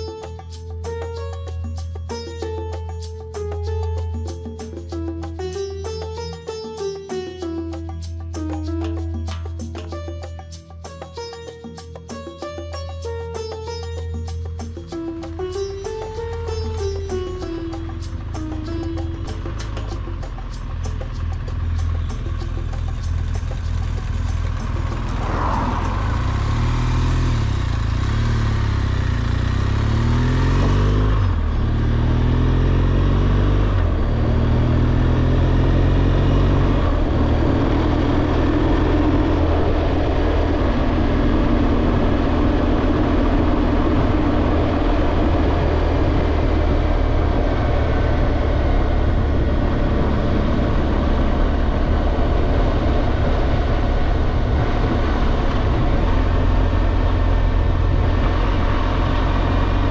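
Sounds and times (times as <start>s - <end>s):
motorcycle engine accelerating: 13.6s - 59.9s.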